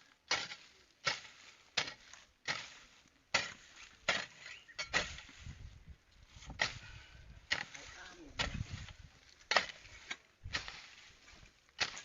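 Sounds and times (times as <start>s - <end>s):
hand tool chopping into ground: 0.2s - 5.4s, 6.4s - 6.9s, 7.5s - 12.0s.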